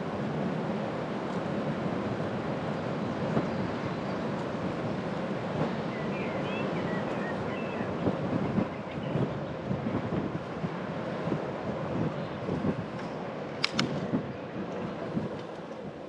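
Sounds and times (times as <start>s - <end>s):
wind on microphone: 0.0s - 16.0s
light clicks: 13.0s - 14.0s.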